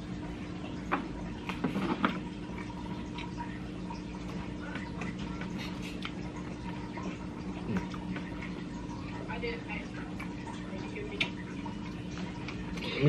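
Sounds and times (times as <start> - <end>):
low electrical hum: 0.0 - 13.0
chewing and lip-smacking: 2.5 - 8.8, 10.0 - 13.0.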